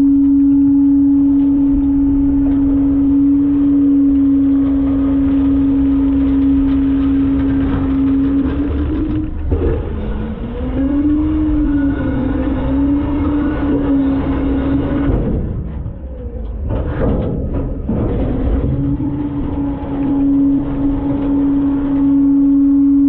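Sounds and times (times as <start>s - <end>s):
garbage truck droning: 0.0s - 23.0s
low rumble: 0.0s - 23.0s.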